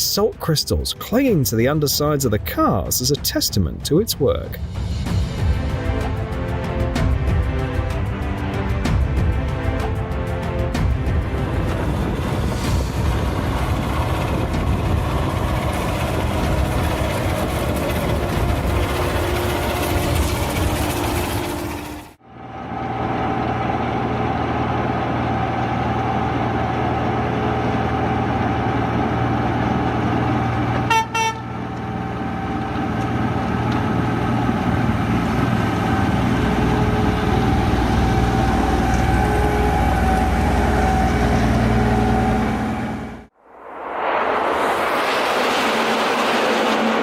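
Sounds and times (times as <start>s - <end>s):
train engine running: 0.0s - 43.3s
train horn toot: 30.8s - 31.8s, 36.5s - 43.2s.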